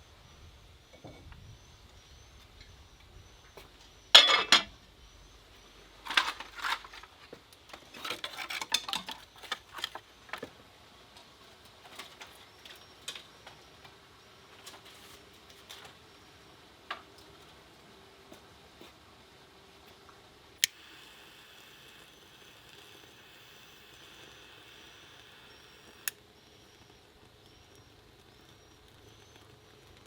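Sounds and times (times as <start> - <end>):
dishes and utensils clattering: 4.2 - 4.7.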